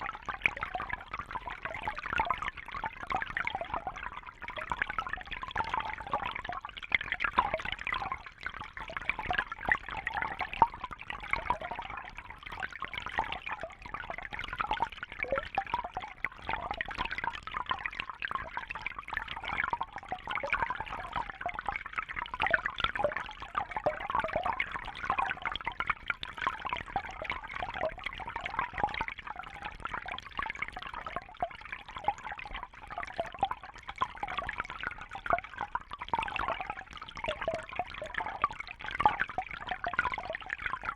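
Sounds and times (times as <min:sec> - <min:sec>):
trickling bubbling water: 0:00.0 - 0:40.9.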